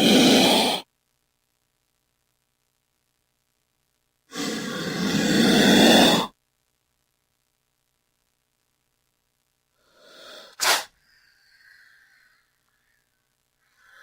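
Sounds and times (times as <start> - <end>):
snake hissing: 0.0 - 0.8, 4.3 - 6.3, 9.8 - 12.3.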